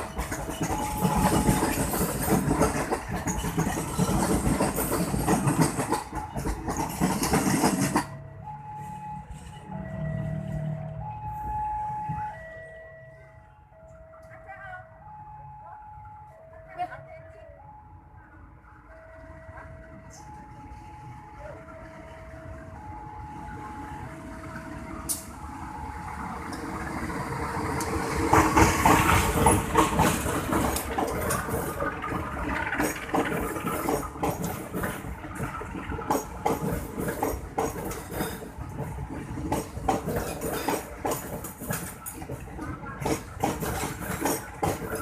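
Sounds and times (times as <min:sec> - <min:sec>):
train wheels clattering: 0:00.0 - 0:08.2, 0:26.5 - 0:45.0.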